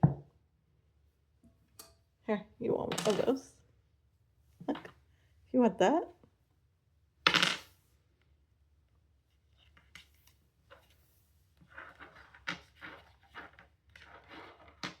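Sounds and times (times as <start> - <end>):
soft handling taps and scrapes: 9.3 - 15.0.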